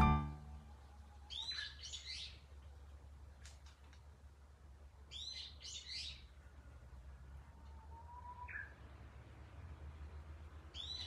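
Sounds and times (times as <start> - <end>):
two-part bird chirping call: 0.0 - 0.6.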